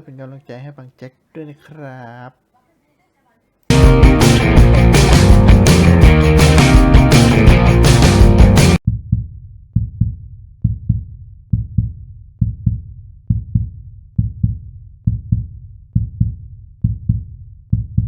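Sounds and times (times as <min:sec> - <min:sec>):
heartbeat double thumps: 0:03.7 - 0:18.0.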